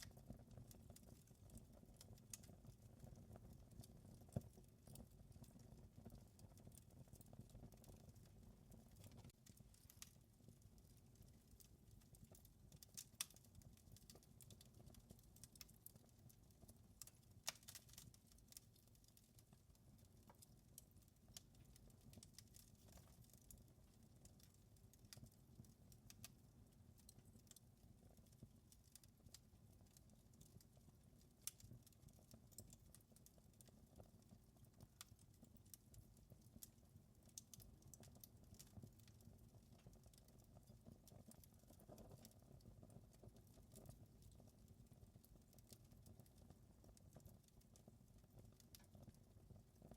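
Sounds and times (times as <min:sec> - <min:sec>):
fire crackling and popping: 0:00.0 - 0:49.9.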